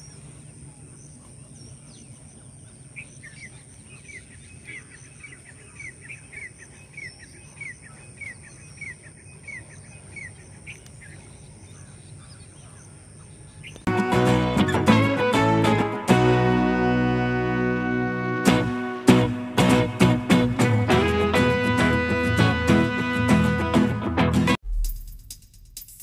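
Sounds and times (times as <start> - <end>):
low outdoor background noise: 0.0 - 13.9.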